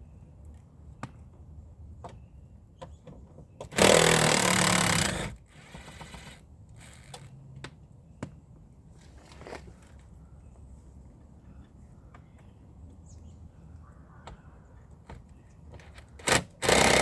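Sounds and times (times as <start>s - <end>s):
power tool running: 3.7s - 6.4s, 16.3s - 17.0s.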